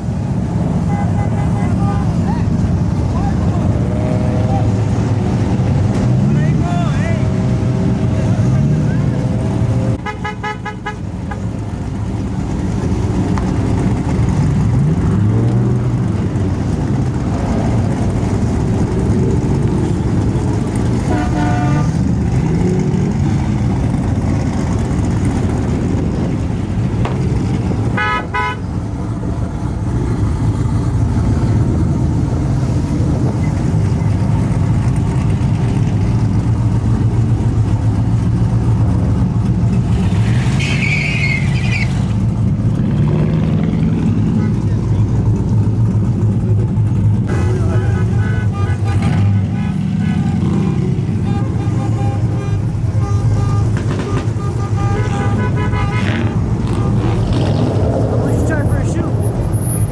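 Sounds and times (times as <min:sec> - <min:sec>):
truck engines revving: 0:00.0 - 0:59.9
truck horn honks: 0:00.7 - 0:02.2, 0:10.0 - 0:11.6, 0:20.9 - 0:22.6, 0:27.8 - 0:28.9, 0:47.3 - 0:57.3.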